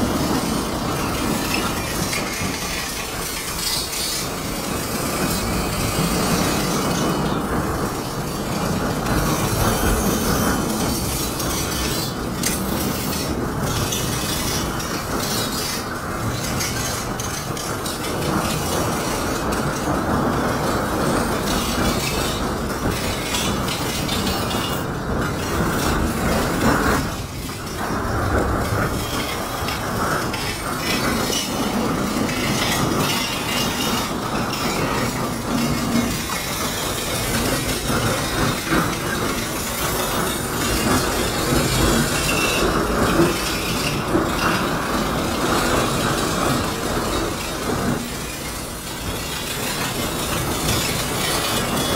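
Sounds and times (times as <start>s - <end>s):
freight train rumbling past: 0.0s - 51.9s.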